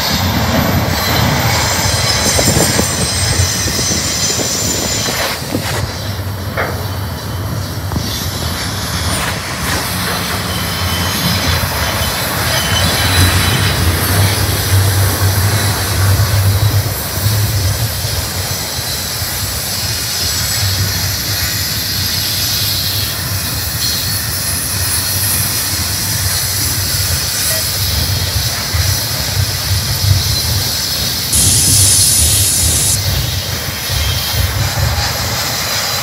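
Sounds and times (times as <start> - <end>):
train wheels rumbling on track: 0.0 - 36.0
hiss: 17.1 - 36.0
brief high hiss: 31.4 - 33.0.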